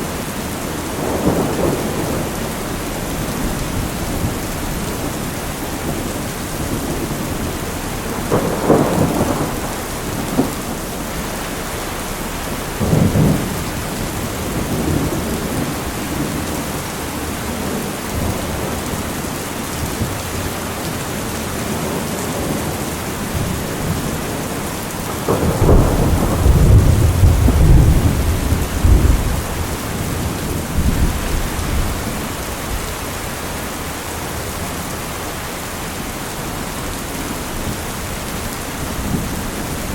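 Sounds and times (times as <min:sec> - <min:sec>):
thunder rumbling: 0:00.0 - 0:19.1, 0:21.6 - 0:34.4
steady rain: 0:00.0 - 0:39.9.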